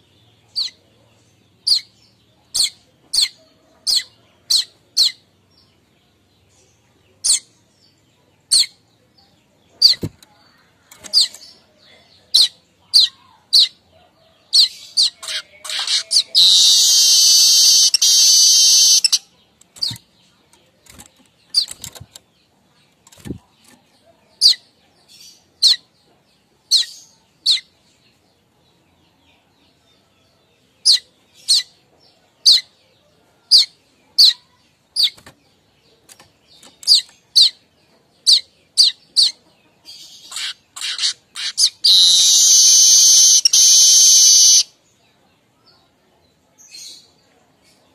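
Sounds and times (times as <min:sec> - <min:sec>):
buzzy chattering bird song: 0:00.0 - 0:05.2, 0:14.6 - 0:23.8, 0:33.5 - 0:44.8
bird chip calls: 0:14.6 - 0:20.0, 0:40.1 - 0:44.7.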